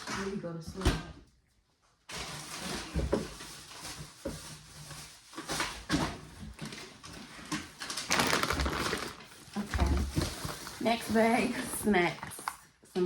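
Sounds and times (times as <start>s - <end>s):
items clunking: 2.1s - 12.5s
grocery bags rustling: 2.1s - 13.0s.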